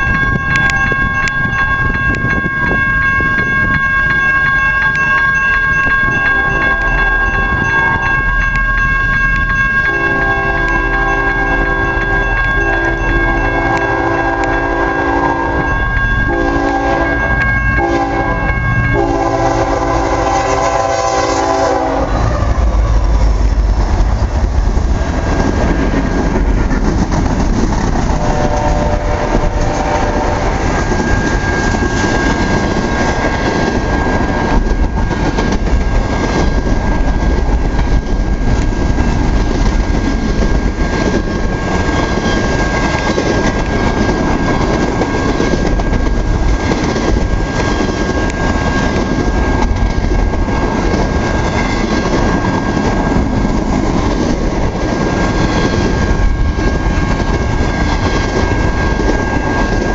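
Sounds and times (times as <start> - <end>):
thin high ringing: 0.0 - 20.3
locomotive air horn: 6.3 - 7.5, 9.9 - 23.2, 28.1 - 30.6.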